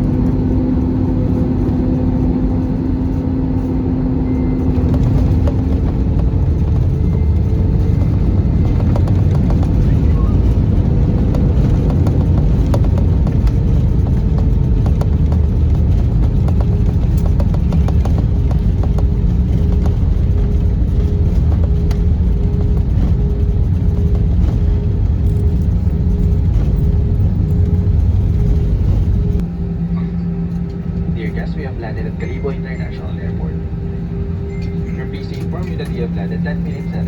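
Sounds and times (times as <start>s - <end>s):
aircraft cabin engine rumble: 0.0s - 37.0s.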